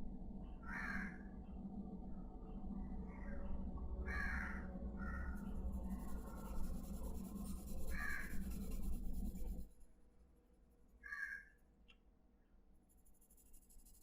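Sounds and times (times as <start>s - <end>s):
steady low hum: 0.0s - 11.0s, 12.3s - 14.0s
crow cawing: 0.6s - 1.2s, 4.1s - 5.3s, 7.9s - 8.3s, 11.0s - 11.6s.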